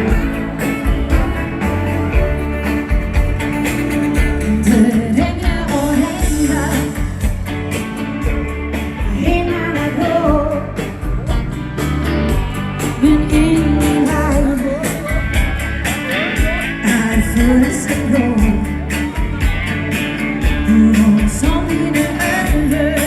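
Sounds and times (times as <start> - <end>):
instrumental dance band music: 0.0 - 23.0.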